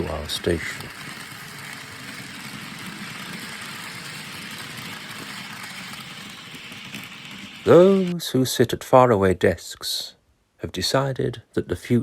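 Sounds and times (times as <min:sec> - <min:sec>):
diesel locomotive engine running: 0:00.0 - 0:08.2.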